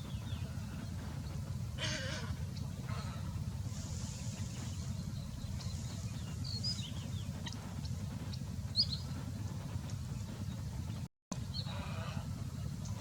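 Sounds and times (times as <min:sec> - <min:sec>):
steady low rumble: 0:00.0 - 0:13.0
small bird chirping: 0:03.9 - 0:09.2.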